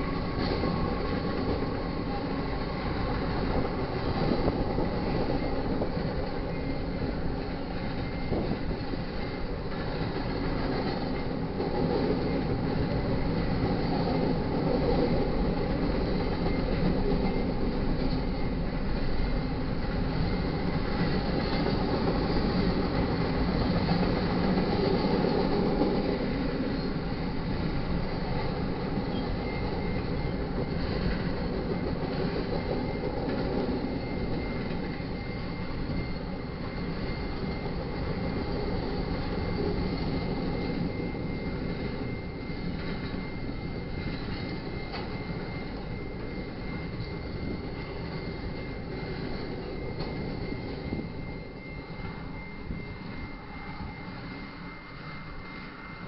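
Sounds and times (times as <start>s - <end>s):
freight train rumbling: 0.0s - 56.0s
thin high tone: 33.9s - 56.0s.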